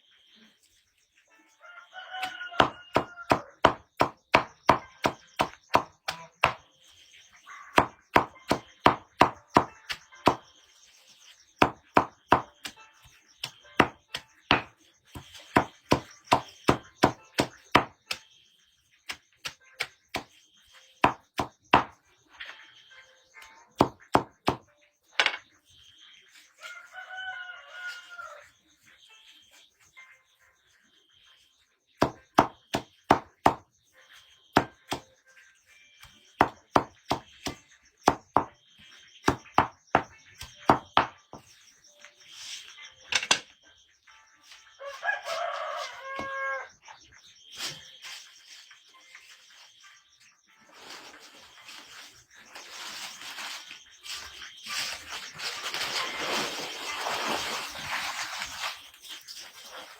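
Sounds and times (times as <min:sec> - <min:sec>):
rooster crowing: 0:01.6 - 0:03.6, 0:26.6 - 0:28.5, 0:44.8 - 0:46.8
firewood being chopped: 0:02.2 - 0:06.6, 0:07.8 - 0:10.5, 0:11.6 - 0:12.8, 0:13.4 - 0:18.2, 0:21.0 - 0:22.0, 0:23.8 - 0:24.6, 0:32.0 - 0:33.6, 0:34.6 - 0:35.1, 0:36.0 - 0:38.6, 0:39.2 - 0:41.4.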